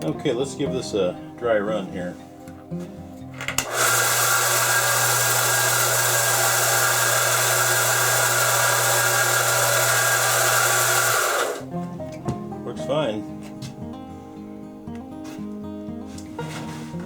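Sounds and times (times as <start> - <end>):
belt sander running: 3.6 - 11.7.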